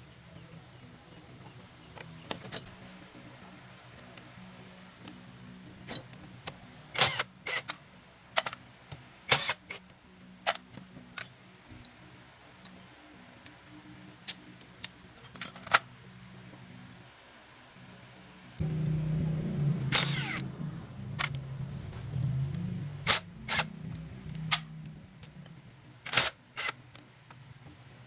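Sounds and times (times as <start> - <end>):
faint low hum: 17.8 - 28.0.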